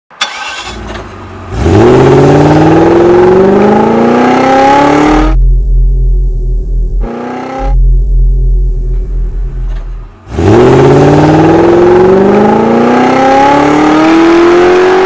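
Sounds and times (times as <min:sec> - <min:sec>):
car engine accelerating hard: 0:00.2 - 0:15.0
low steady engine rumble: 0:05.1 - 0:11.6.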